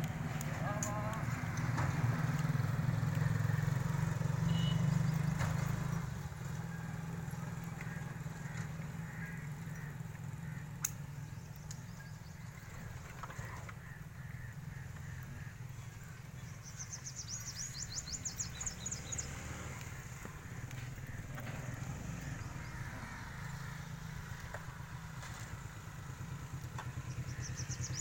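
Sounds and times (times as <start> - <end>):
low engine-like rumble: 0.0 - 3.9, 5.9 - 28.0
bird chirping: 16.4 - 20.0.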